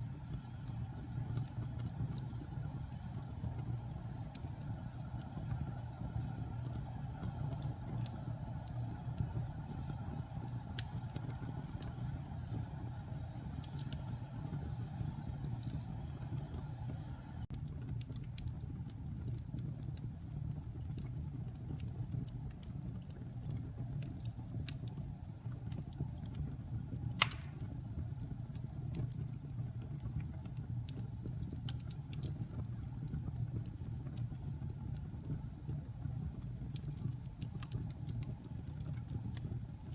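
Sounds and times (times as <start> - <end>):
fire crackling in fireplace: 0.0 - 39.9
sharp pop of fire: 27.2 - 27.8.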